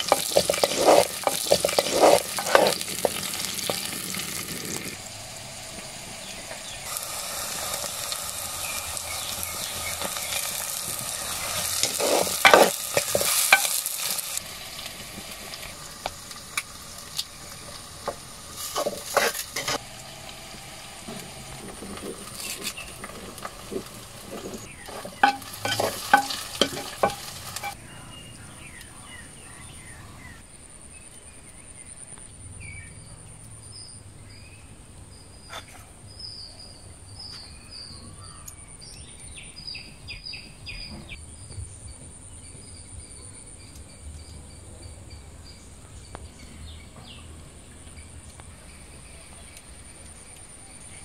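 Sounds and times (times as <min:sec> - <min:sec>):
wooden spoon stirring and knocking: 0:00.0 - 0:04.9, 0:08.8 - 0:14.2, 0:18.0 - 0:19.8, 0:21.1 - 0:27.8
leaves sizzling in hot pot: 0:00.0 - 0:27.8
birds chirping: 0:00.0 - 0:51.0.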